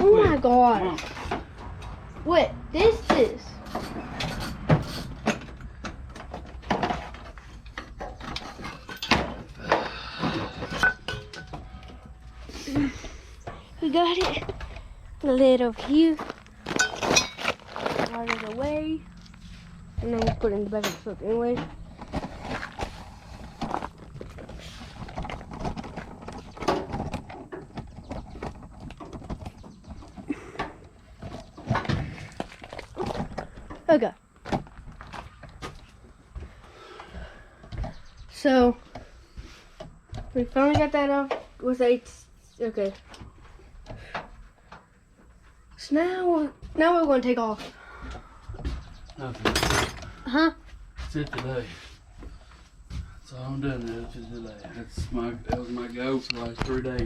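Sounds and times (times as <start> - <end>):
metal engine parts clunking: 2.9 - 12.4, 13.4 - 22.9, 48.7 - 50.2.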